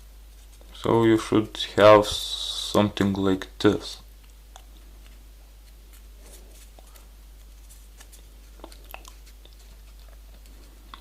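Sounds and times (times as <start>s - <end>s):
low steady hum: 0.0s - 11.0s
paper crinkling: 5.0s - 11.0s.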